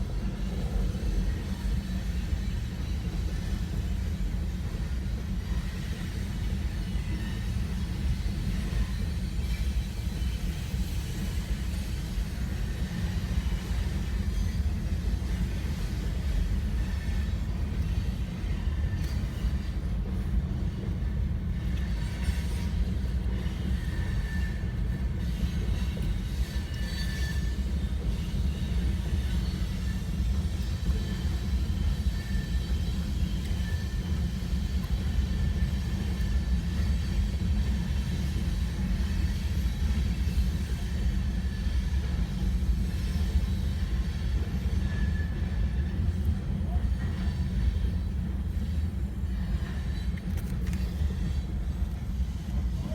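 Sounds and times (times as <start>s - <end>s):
train rumble: 0.0s - 52.9s
wheel squeals: 21.8s - 34.2s.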